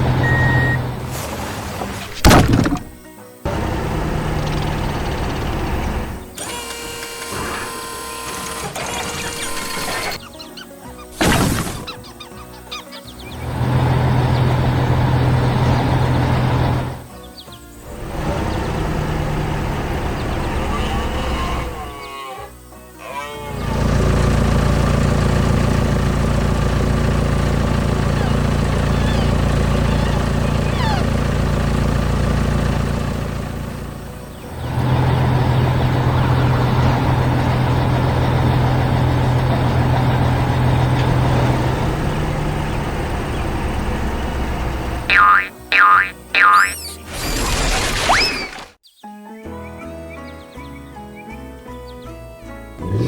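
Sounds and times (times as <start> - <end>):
heavy vehicle engine droning: 0.0 - 7.0, 13.1 - 22.0, 23.4 - 46.7, 52.7 - 53.0
cartoon mechanical whirring: 4.3 - 10.3, 28.0 - 31.3, 45.1 - 48.8.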